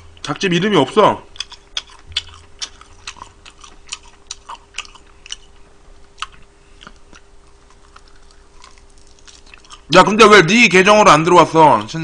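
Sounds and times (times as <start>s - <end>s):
person chewing crispy chicken: 1.3s - 9.9s.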